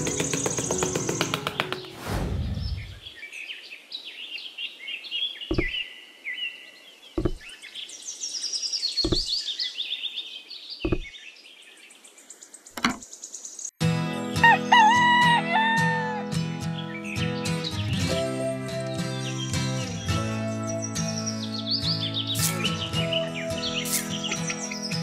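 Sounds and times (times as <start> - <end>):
small birds chirping: 0.0 - 1.9, 2.5 - 13.8, 18.8 - 25.0.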